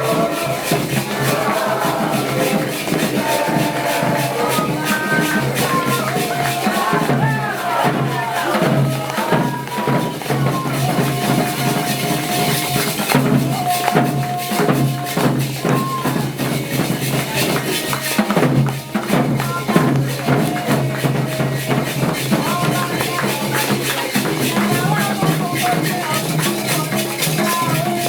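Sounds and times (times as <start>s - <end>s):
drums: 0.0s - 28.0s
shaken rattles: 0.0s - 28.0s.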